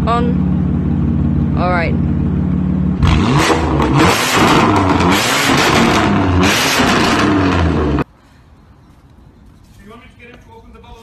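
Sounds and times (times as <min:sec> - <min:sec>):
car engine revving hard: 0:02.9 - 0:08.0.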